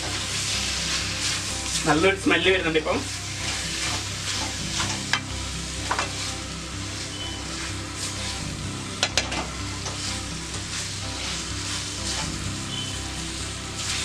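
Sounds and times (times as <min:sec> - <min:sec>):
food sizzling in pan: 0:00.0 - 0:14.0
spatula scraping pan: 0:09.1 - 0:13.2.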